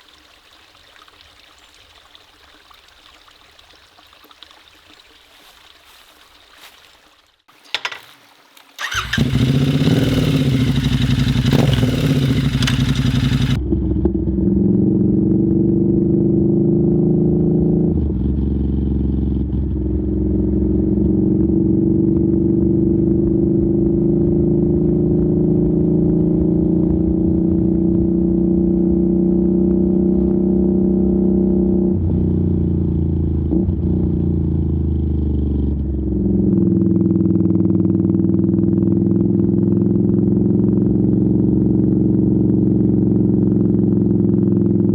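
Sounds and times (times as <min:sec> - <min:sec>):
motorcycle engine running: 0:08.8 - 0:15.4, 0:33.9 - 0:44.9.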